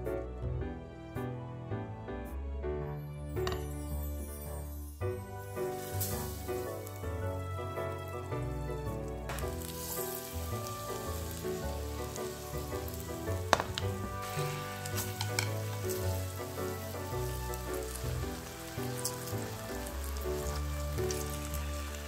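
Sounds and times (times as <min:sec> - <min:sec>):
background music: 0:00.0 - 0:22.0
tofu sizzling in oil: 0:05.3 - 0:22.0.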